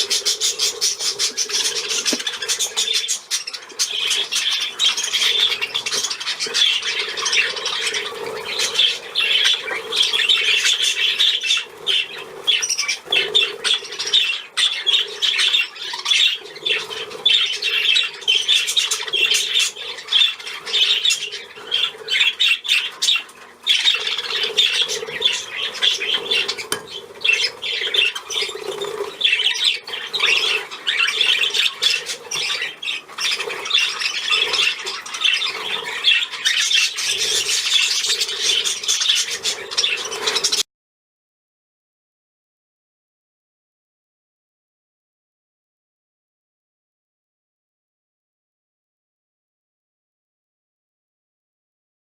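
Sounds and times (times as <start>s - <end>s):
budgerigars chattering and squawking: 0.0s - 40.6s.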